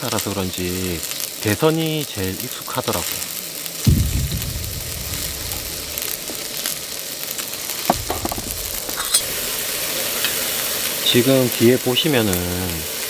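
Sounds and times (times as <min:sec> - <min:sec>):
pork sizzling in a pan: 0:00.0 - 0:13.0
dull knock: 0:07.9 - 0:08.9.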